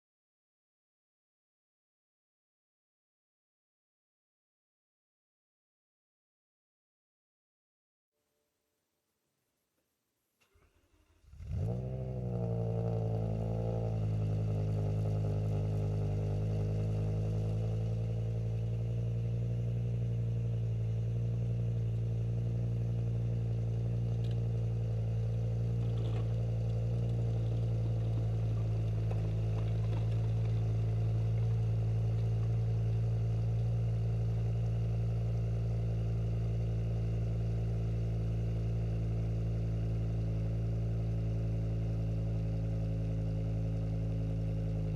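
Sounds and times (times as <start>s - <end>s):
car engine starting and idling: 10.4s - 44.9s.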